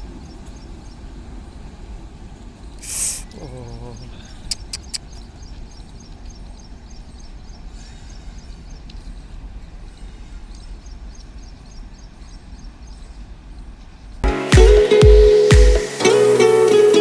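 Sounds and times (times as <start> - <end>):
loud music: 14.2 - 17.0.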